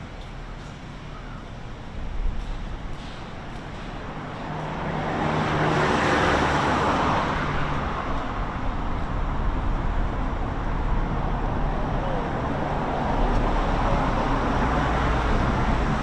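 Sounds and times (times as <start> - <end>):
steady traffic noise: 0.0 - 16.0
vehicle passing close by: 4.5 - 11.5.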